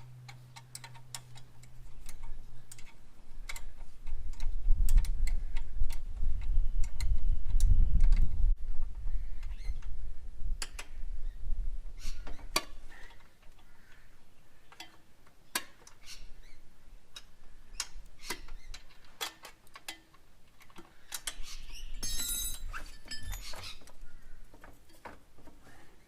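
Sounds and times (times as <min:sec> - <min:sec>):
hand tools clicking on metal: 0:00.0 - 0:08.2.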